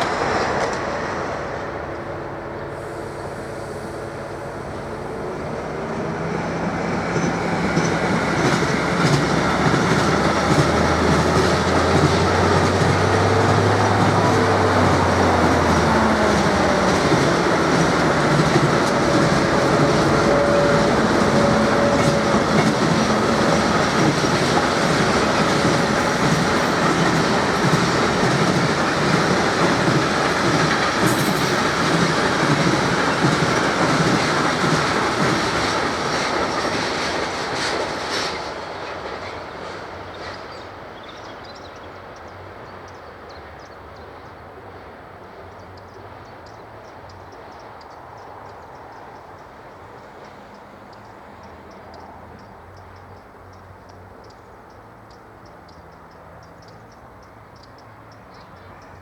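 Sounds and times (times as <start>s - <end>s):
railway wagons rolling past: 0.0s - 59.0s
wheels clicking over rail joints: 5.8s - 41.2s.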